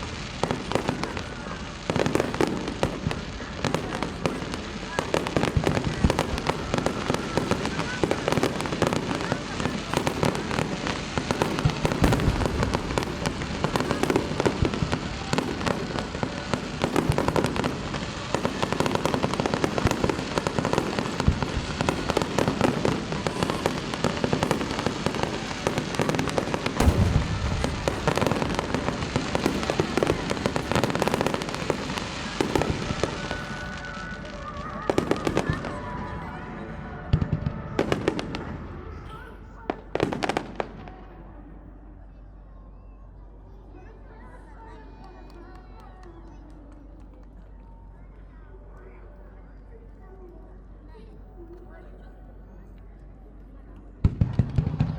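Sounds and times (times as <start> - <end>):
fireworks booms: 0.0 - 36.2, 37.1 - 39.0, 39.7 - 41.2, 54.0 - 54.9
fireworks bursts and crackling: 0.0 - 41.6, 53.3 - 54.9.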